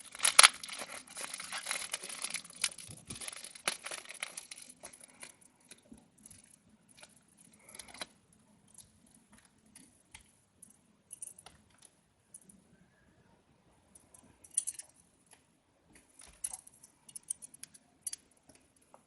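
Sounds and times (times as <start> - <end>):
plastic wrapping rustling: 0.0 - 8.1
small hard items clicking: 0.0 - 8.1.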